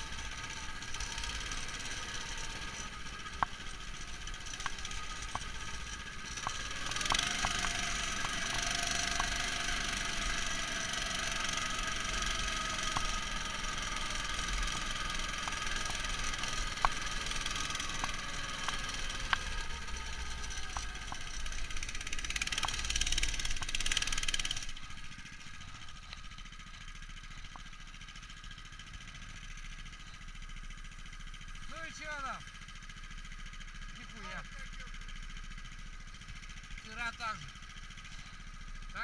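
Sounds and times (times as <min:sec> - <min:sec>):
muffled snow tow engine running: 0:00.0 - 0:39.0
sharp clicks: 0:03.3 - 0:09.6, 0:14.6 - 0:24.8.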